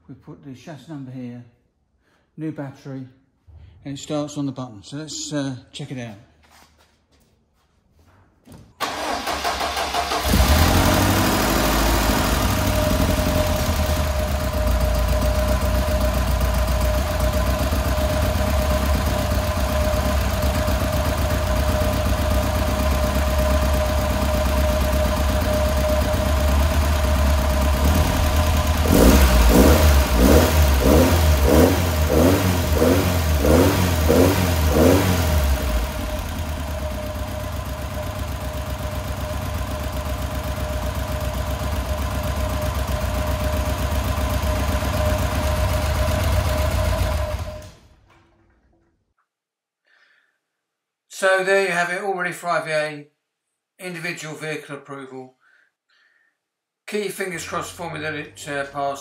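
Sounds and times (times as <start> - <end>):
engine starter cranking: 8.8 - 30.7
engine revving: 8.8 - 39.6, 40.2 - 47.8
car engine idling: 8.8 - 48.1.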